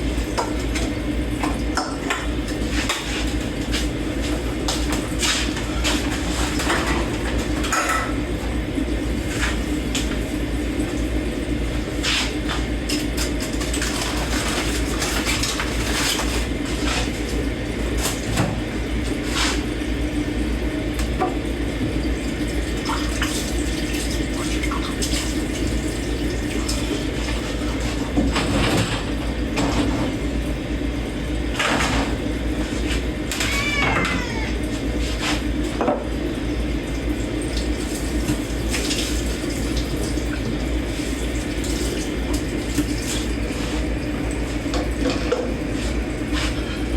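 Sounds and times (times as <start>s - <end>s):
tap water running: 0.0s - 46.9s
cat meowing: 33.3s - 34.7s.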